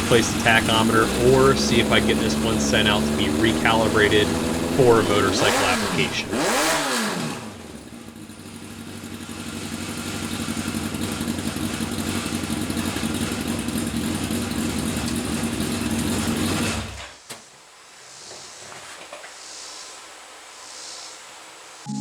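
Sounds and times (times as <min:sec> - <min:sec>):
motorcycle engine running: 0:00.0 - 0:07.0, 0:07.6 - 0:16.6.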